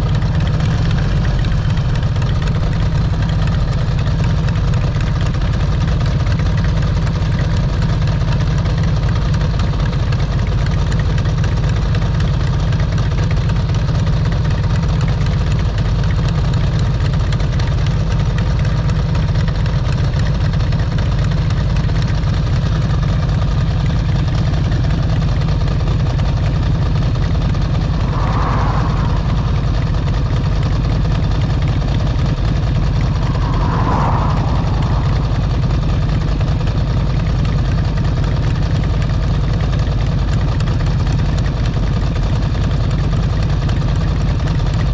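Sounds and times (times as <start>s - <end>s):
motorcycle engine running: 0.0s - 14.1s.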